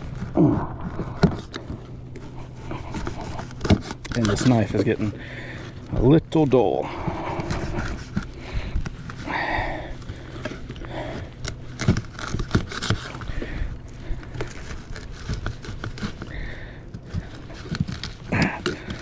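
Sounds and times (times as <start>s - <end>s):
knife sawing through frozen fish: 1.4s - 5.6s, 6.4s - 19.0s.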